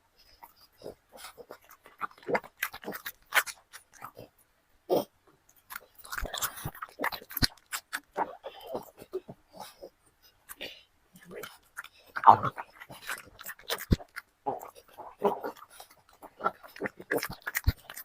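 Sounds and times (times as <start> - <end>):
dog chewing and crunching food: 0.1 - 18.0.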